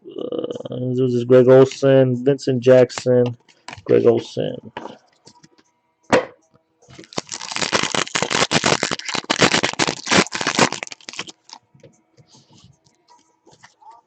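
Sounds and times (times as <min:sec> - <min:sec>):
trading cards and wrapper handled: 0:03.5 - 0:04.1, 0:06.9 - 0:11.6
dense crackling and clicking: 0:07.0 - 0:11.6.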